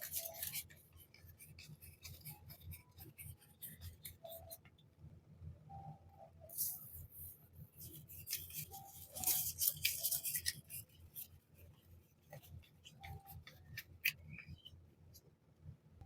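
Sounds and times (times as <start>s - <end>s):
packaging crinkling: 8.1s - 10.9s.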